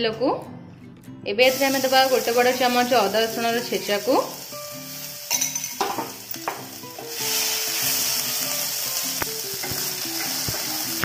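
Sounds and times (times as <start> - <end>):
paste sizzling in hot oil: 1.5 - 11.0
spatula tapping on pan: 5.4 - 6.7.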